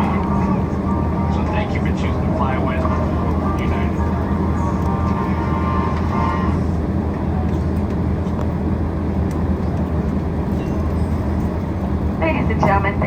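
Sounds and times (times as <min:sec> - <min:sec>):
faint steady tones: 0:00.0 - 0:07.3, 0:10.9 - 0:13.0
cabin air noise: 0:00.0 - 0:13.0
jet engines at low thrust: 0:00.0 - 0:13.0.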